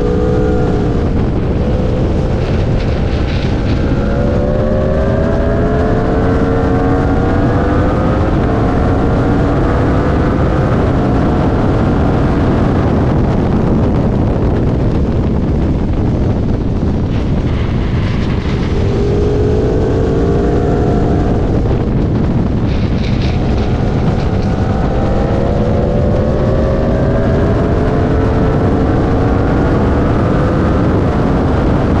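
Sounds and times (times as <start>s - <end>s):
motorcycle engine revving: 0.0s - 32.0s
wind rushing over microphone: 0.0s - 32.0s.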